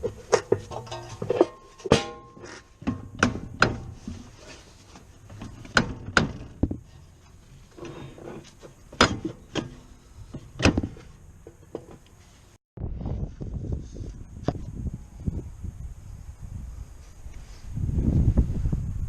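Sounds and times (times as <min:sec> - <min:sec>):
quiet clatter of tools: 0:00.0 - 0:02.7
sharp knocks and clicks: 0:00.3 - 0:04.0, 0:05.3 - 0:06.8.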